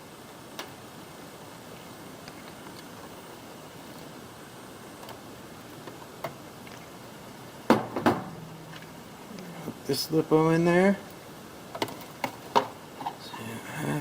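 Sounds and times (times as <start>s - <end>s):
faint steady hiss: 0.0s - 14.0s
sharp knocks: 7.7s - 8.5s.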